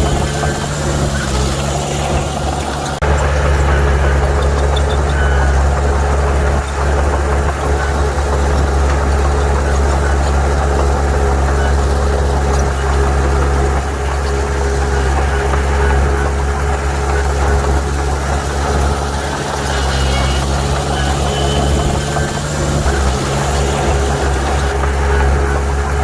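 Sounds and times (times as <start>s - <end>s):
heavy diesel engine droning: 0.0s - 26.0s.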